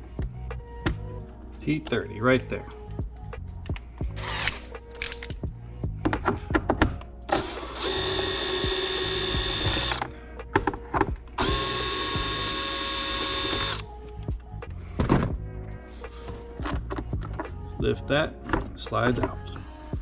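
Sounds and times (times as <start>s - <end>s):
cordless drill motor whine: 7.4s - 10.0s, 11.4s - 13.8s.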